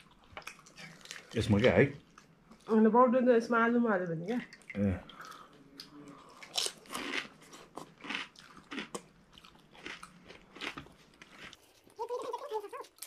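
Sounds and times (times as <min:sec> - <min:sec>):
crisp shells crunching and chewing: 0:06.3 - 0:13.0.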